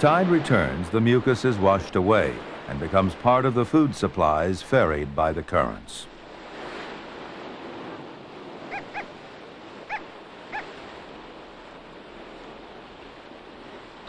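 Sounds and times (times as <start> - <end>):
surf washing: 0.0 - 14.0
high yelping calls: 8.7 - 9.2, 9.9 - 10.8.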